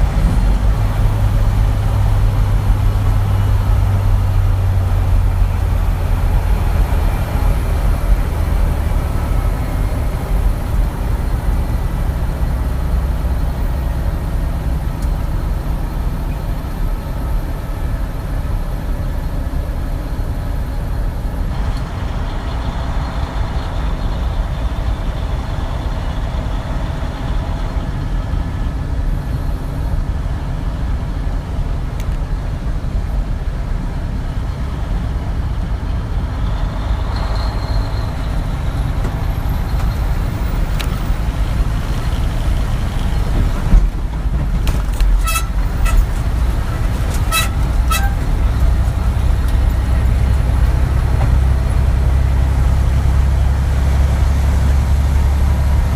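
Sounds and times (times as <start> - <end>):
truck engine rumble: 0.0 - 55.9.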